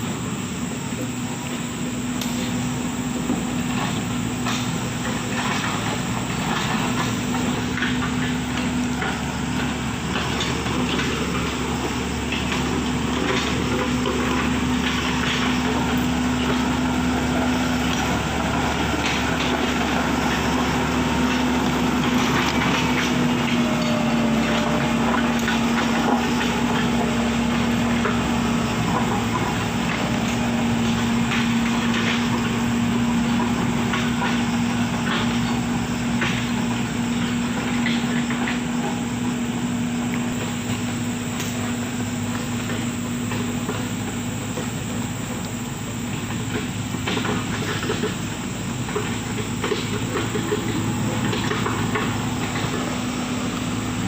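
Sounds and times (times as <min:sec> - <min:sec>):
machine engine running: 0:00.0 - 0:54.0.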